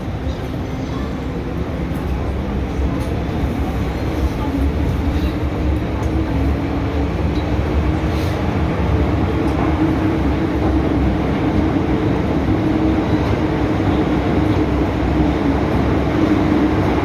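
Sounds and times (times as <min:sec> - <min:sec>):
train wheels rumbling on rail: 0:00.0 - 0:17.0
train motor hum: 0:08.6 - 0:17.0.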